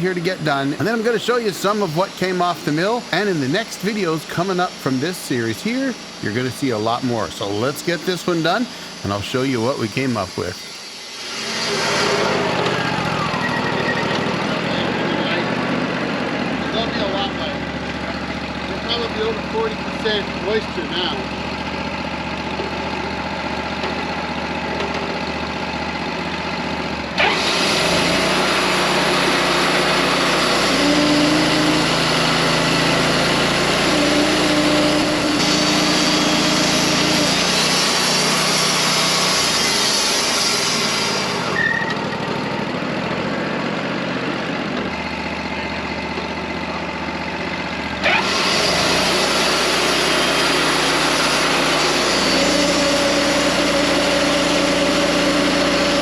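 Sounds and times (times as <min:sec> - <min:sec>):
saw blade cutting log: 0:00.0 - 0:13.7, 0:27.2 - 0:42.1, 0:48.0 - 0:56.0
sawmill engine running: 0:00.0 - 0:56.0.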